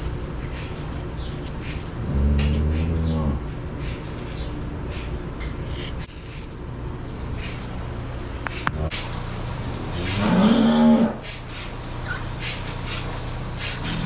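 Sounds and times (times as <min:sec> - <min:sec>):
cow mooing: 0:02.0 - 0:03.5, 0:10.0 - 0:11.3.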